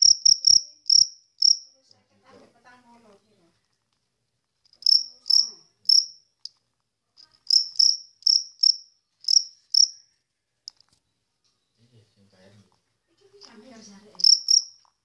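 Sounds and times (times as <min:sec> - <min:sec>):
insect chirping: 0:00.0 - 0:01.9, 0:04.6 - 0:06.6, 0:07.2 - 0:10.8, 0:13.4 - 0:14.9.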